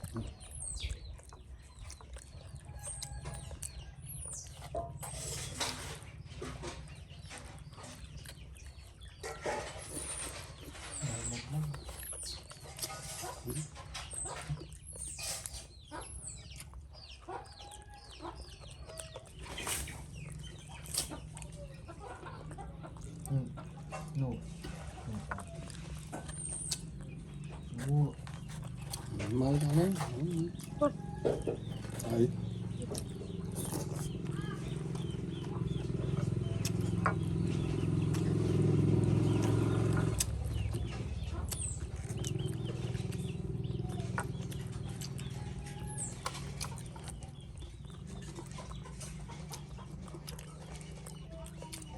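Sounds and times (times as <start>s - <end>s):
high-pitched peeping calls: 0.0s - 51.9s
low engine hum: 17.8s - 51.9s.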